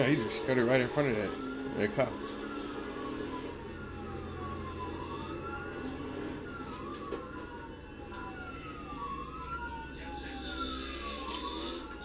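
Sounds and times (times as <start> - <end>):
engine and road rumble: 0.0 - 12.0
police siren wailing: 0.0 - 12.0.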